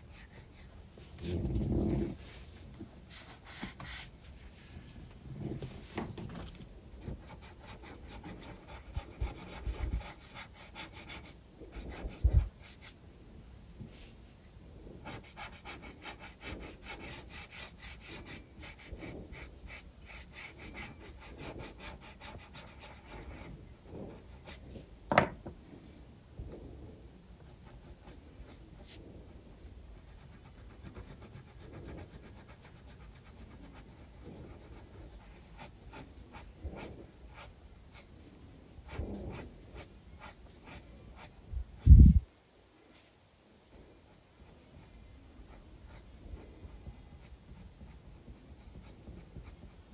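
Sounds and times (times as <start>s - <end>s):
pencil scratching on paper: 0.0s - 0.7s, 7.0s - 13.0s, 15.0s - 26.0s, 26.8s - 41.3s, 44.1s - 49.9s.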